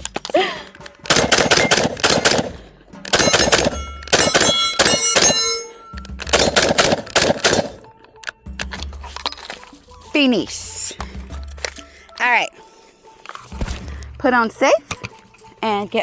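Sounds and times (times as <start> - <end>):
rifle shots: 1.1 - 5.7, 6.3 - 7.9
metallic ringing: 3.1 - 6.7.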